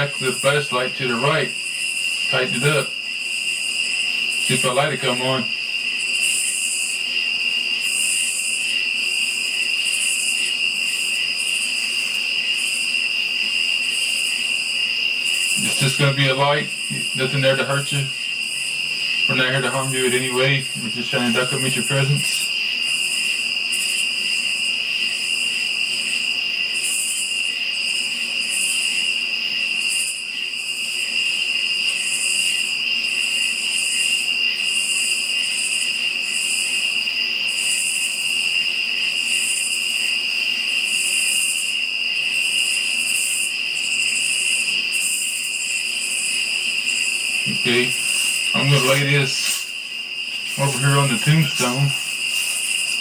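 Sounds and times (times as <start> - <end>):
cricket trill: 0.0 - 53.0
insect chorus pulsing: 0.0 - 53.0.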